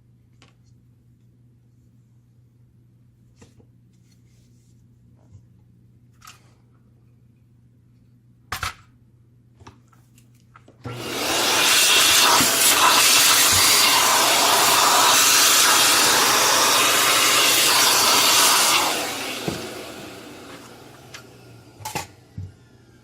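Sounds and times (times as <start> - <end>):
air tool rush of air: 11.0 - 21.4.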